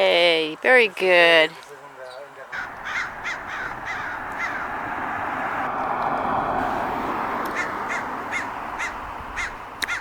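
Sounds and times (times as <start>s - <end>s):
crow cawing: 2.5s - 5.2s, 7.5s - 10.0s.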